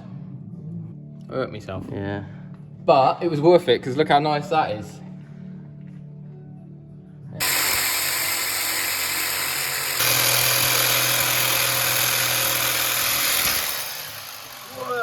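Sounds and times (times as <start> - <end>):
loud machine noise: 7.4 - 15.0.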